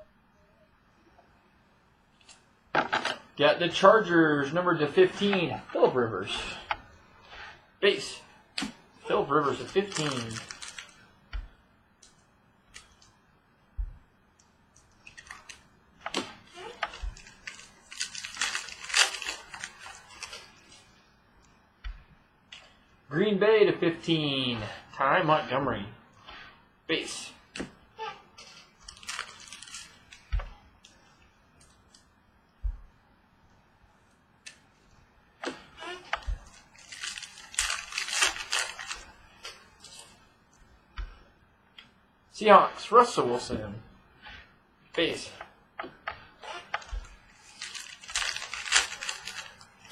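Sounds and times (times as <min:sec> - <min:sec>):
wrapper tearing and crinkling: 0:08.6 - 0:11.1, 0:15.0 - 0:20.8, 0:28.4 - 0:30.3, 0:35.5 - 0:40.1, 0:46.4 - 0:49.9.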